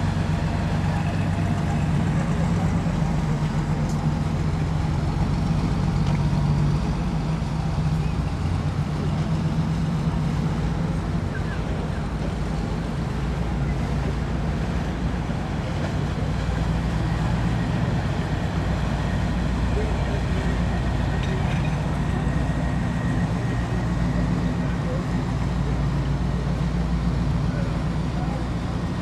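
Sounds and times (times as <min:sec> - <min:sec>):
large vehicle engine idling: 0:00.0 - 0:29.0.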